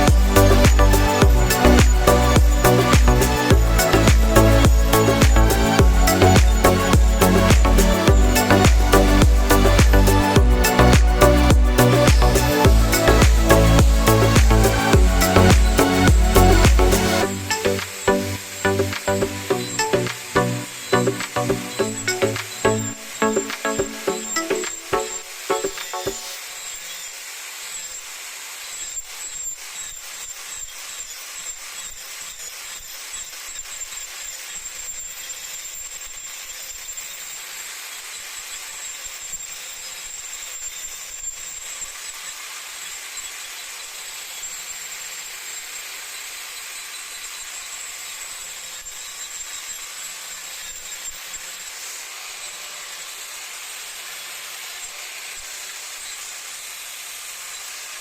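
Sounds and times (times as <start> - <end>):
rapid scratchy ticks: 0.0 - 17.2
power tool whining on wood: 0.0 - 58.0.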